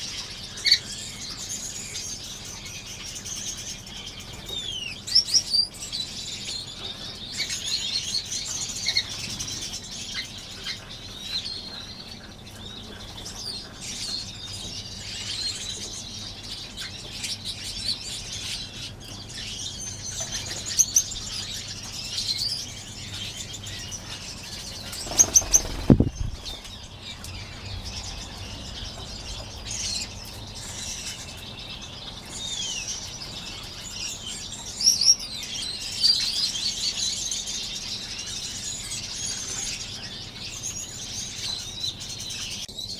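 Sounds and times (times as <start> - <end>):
finches chirping: 0.0 - 42.5
wings fluttering: 24.4 - 32.4
loud thump with deep rumble: 25.9 - 26.6.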